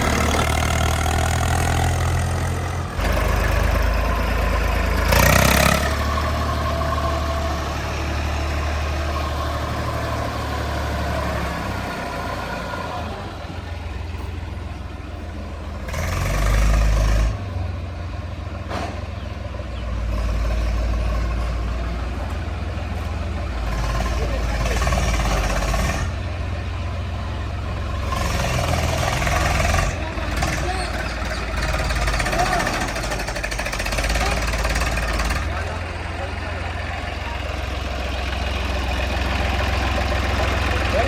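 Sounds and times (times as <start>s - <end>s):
heavy diesel engine running: 0.0s - 41.0s.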